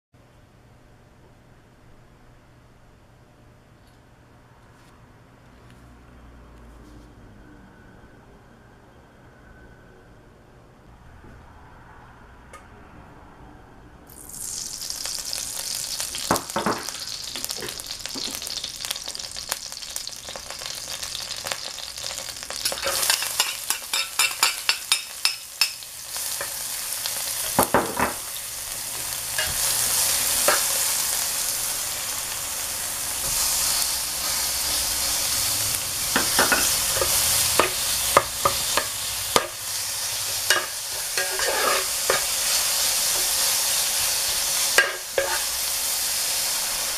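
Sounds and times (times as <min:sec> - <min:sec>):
meat sizzling in oil: 0:14.1 - 0:46.9
metal spatula scraping pan: 0:22.6 - 0:25.8, 0:36.2 - 0:43.5, 0:44.8 - 0:45.6.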